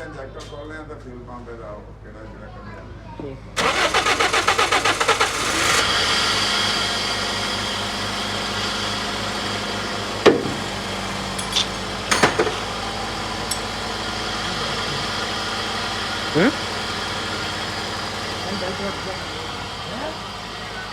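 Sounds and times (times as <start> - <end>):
car engine idling: 3.6 - 20.9
engine clicks or knocks: 10.2 - 13.8.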